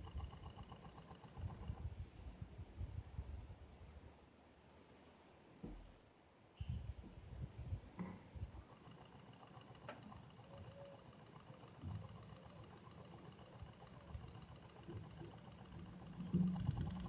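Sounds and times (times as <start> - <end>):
small engine running: 0.0 - 2.4, 6.8 - 17.0.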